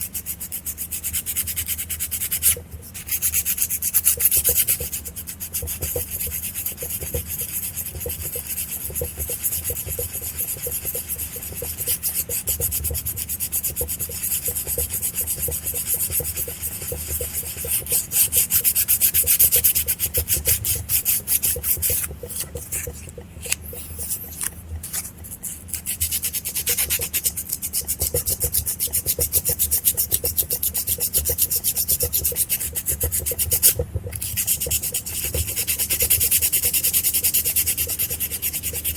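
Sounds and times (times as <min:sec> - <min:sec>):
sandpaper rubbing on metal: 0:05.6 - 0:38.9.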